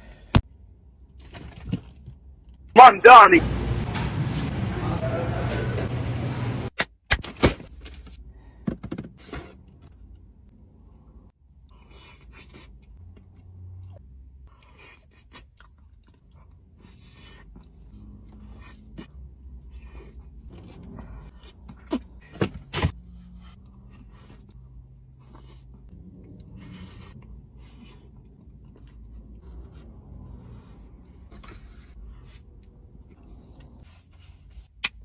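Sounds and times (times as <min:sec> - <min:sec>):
chewing and mouth sounds: 0:11.6 - 0:19.1, 0:23.2 - 0:35.0.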